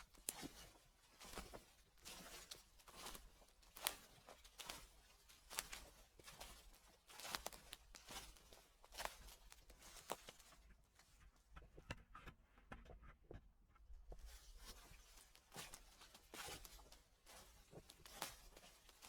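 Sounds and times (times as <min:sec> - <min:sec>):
footsteps crunching dry leaves: 0:00.0 - 0:10.5, 0:14.6 - 0:19.0.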